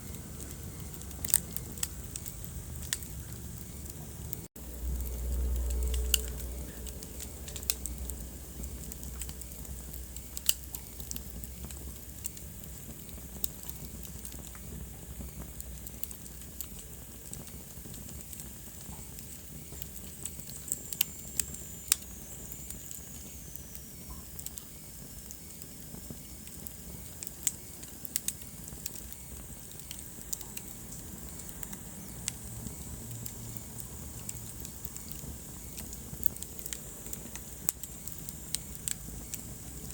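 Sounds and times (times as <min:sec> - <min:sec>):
low steady rumble: 0:00.0 - 0:23.0
wood fire crackling and popping: 0:00.0 - 0:39.9.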